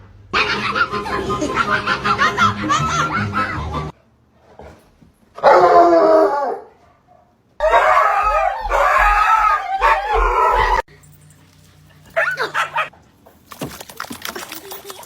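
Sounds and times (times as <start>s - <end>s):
dog howling: 5.4s - 6.7s, 7.6s - 10.9s.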